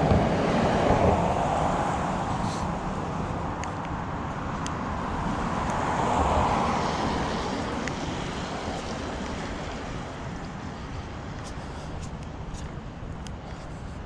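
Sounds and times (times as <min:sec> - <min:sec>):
vehicle passing by: 0:00.0 - 0:12.9.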